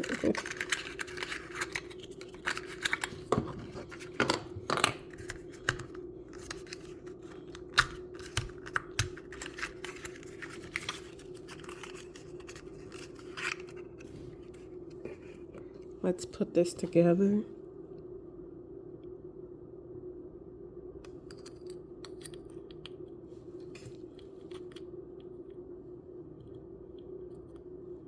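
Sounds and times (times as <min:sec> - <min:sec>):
plastic wrappers tearing: 0:00.0 - 0:04.2
plastic packaging clicks and scratches: 0:00.0 - 0:14.6
faint steady hum: 0:00.0 - 0:28.0.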